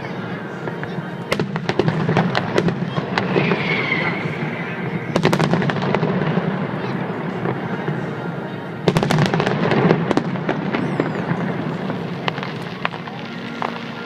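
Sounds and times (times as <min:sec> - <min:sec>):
fireworks banging: 0:00.2 - 0:14.0.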